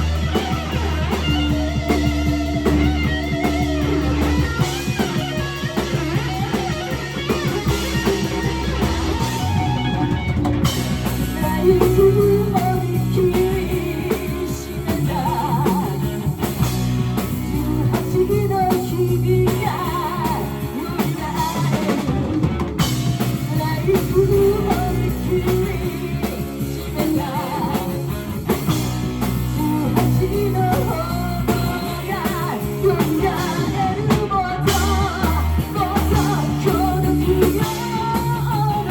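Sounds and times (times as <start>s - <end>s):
bass guitar: 0.0s - 38.9s
drum kit: 0.0s - 38.9s
electric guitar: 0.0s - 38.9s
person singing: 11.0s - 16.4s, 17.2s - 22.4s, 23.3s - 28.2s, 29.3s - 38.9s.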